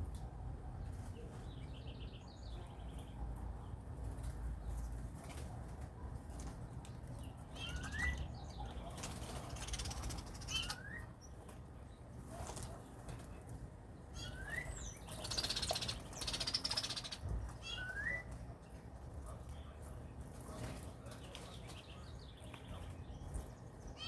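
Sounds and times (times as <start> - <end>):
rustling fluttering noise: 8.9 - 10.8.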